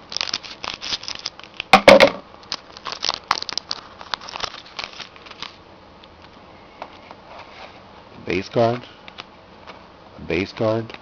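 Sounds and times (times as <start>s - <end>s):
foil wrapper ripping: 0.0s - 1.7s, 2.4s - 5.6s
foil wrapper crinkling: 0.0s - 1.8s, 2.4s - 5.6s.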